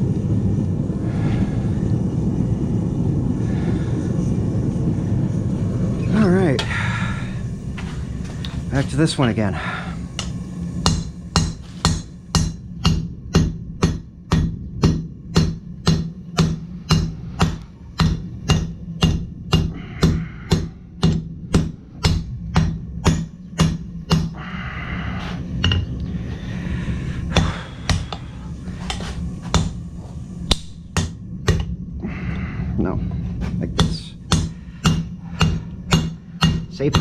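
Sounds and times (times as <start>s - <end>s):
hammer striking steel on anvil: 10.2s - 24.4s, 25.6s - 25.9s, 27.4s - 28.2s, 28.9s - 29.8s, 30.5s - 31.7s, 33.8s - 37.0s.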